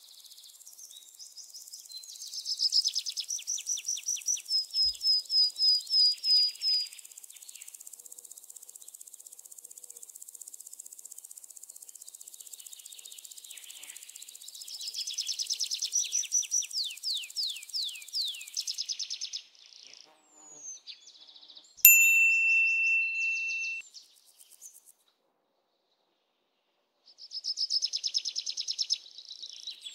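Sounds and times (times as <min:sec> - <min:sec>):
bird chirping and trilling: 0:22.0 - 0:23.8.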